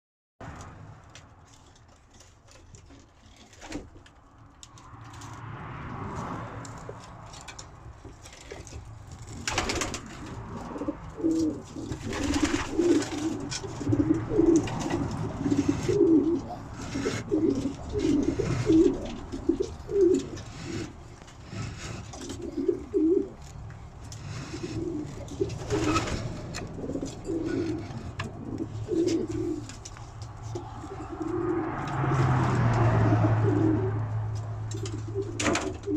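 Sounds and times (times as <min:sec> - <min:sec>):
pigeons cooing: 0:09.4 - 0:35.9.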